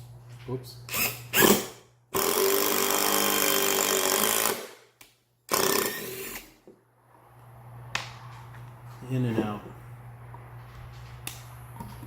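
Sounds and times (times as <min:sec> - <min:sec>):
impact driver driving screw into wood: 0:00.9 - 0:04.9, 0:05.5 - 0:06.6.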